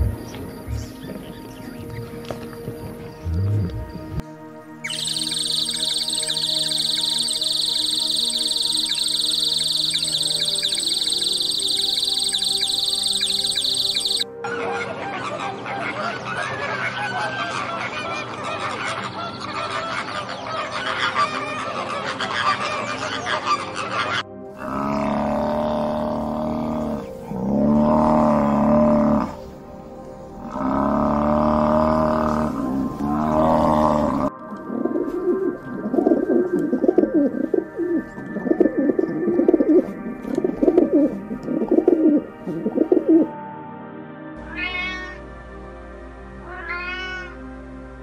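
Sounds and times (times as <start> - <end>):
pigeons cooing: 4.8 - 14.2, 30.4 - 43.3
flamingos honking: 4.8 - 29.5.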